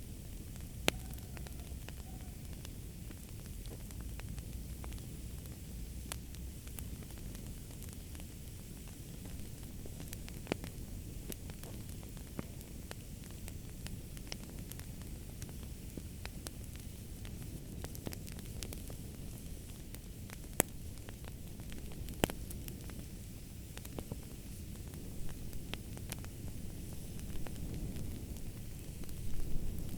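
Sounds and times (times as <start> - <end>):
loud fire pops: 0.0 - 29.9
wood fire crackling: 0.0 - 29.9.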